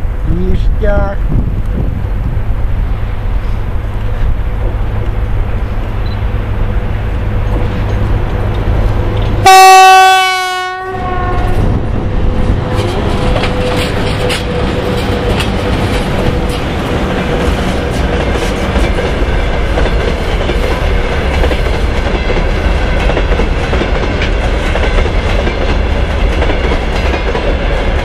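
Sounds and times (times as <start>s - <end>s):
train low rumble: 0.0s - 28.0s
locomotive horn blast: 9.4s - 11.7s
wheels clicking over rail joints: 12.6s - 28.0s.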